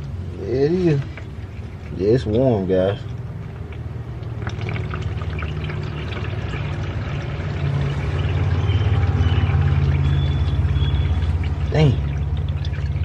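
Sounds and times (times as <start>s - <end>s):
oil pouring into a pan: 3.6s - 13.0s.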